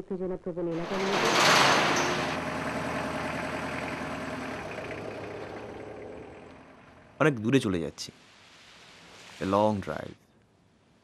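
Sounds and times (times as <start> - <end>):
suv engine driving away: 0.8 - 7.2.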